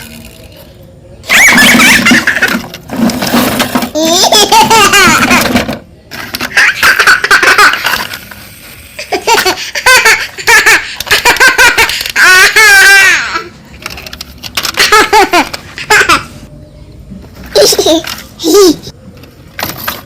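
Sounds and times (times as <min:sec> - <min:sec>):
high-pitched laughter: 0:01.2 - 0:02.7, 0:04.0 - 0:05.6, 0:06.4 - 0:08.2, 0:09.0 - 0:13.5, 0:14.6 - 0:16.4.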